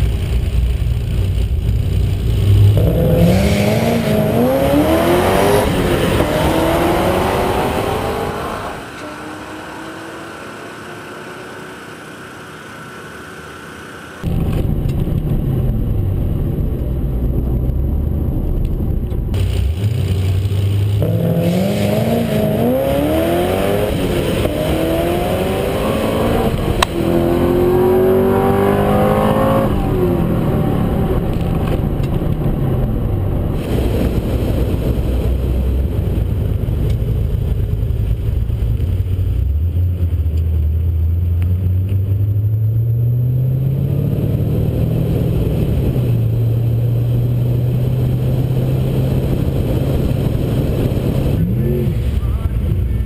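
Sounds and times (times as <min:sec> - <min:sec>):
car engine revving through upshifts: 0:02.4 - 0:14.3, 0:19.4 - 0:32.4, 0:41.4 - 0:52.1.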